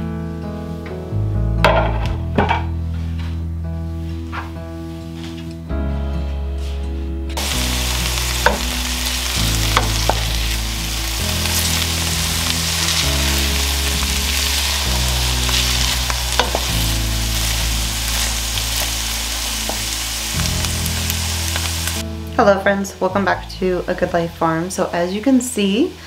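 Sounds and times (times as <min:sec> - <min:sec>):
sausage and onions sizzling: 0:07.4 - 0:22.1.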